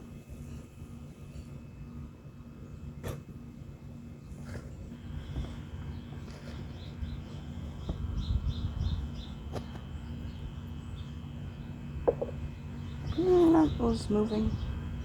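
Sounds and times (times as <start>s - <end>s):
digging in garden soil: 2.6s - 8.2s
faint bird chirping: 4.2s - 15.0s.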